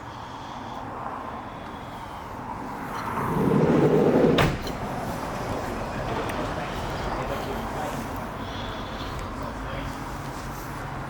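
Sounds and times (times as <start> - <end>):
sliding door rumbling on track: 2.8 - 7.3
door shutting clack: 4.2 - 4.9.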